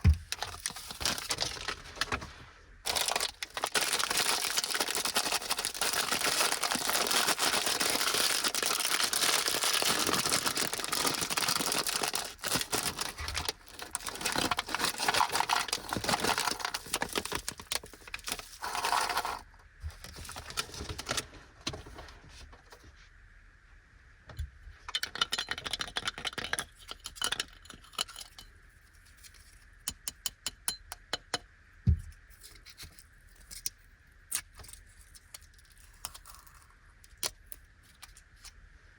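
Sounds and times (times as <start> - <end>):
plastic wrappers crinkling and tearing: 0.1 - 21.3.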